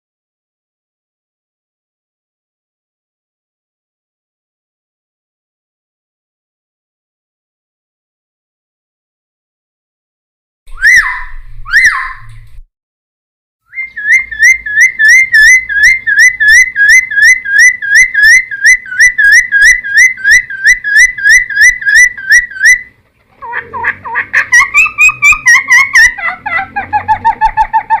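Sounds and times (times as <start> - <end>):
bird whistled song: 10.7 - 12.5, 13.7 - 22.9, 24.5 - 28.0.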